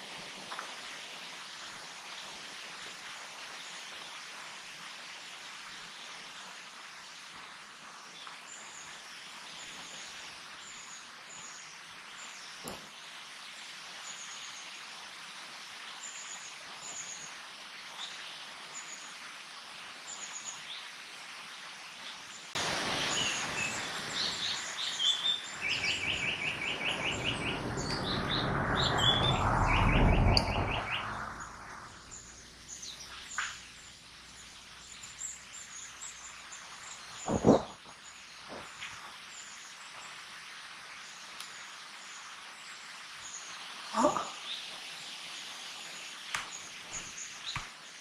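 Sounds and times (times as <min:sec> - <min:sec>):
faint high bird chirps: 0:22.4 - 0:40.1
rushing noise: 0:22.6 - 0:32.7
bird singing rapid notes: 0:23.0 - 0:38.8.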